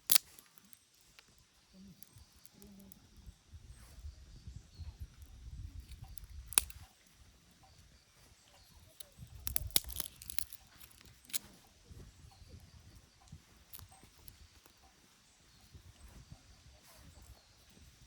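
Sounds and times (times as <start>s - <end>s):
campfire crackling: 0.0s - 2.5s.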